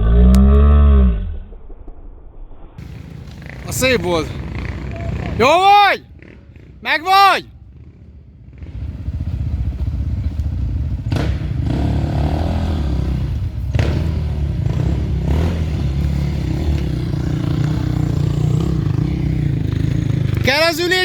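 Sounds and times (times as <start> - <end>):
motorcycle engine running: 2.8 - 21.0.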